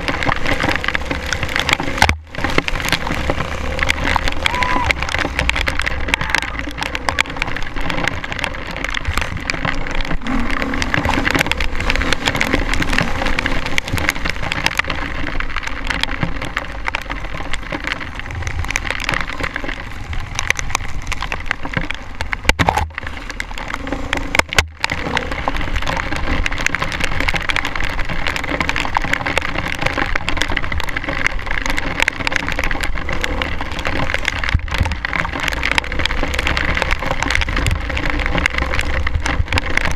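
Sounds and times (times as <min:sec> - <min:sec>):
dirt bike engine: 0:00.0 - 0:28.0
crackling and clattering: 0:00.0 - 0:39.9
rain pattering: 0:00.0 - 0:39.9.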